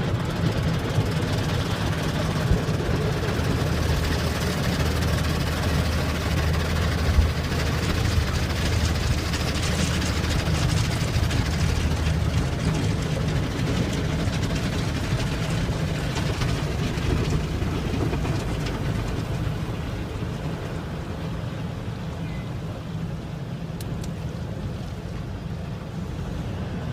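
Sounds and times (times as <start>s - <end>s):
car wash rushing and hissing: 0.0s - 26.9s
low machinery hum: 0.0s - 26.9s.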